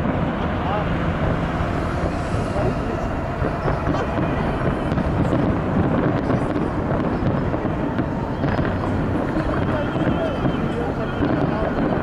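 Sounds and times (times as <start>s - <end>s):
crowd ambience: 0.0s - 12.0s
wind rumbling on microphone: 0.0s - 12.0s.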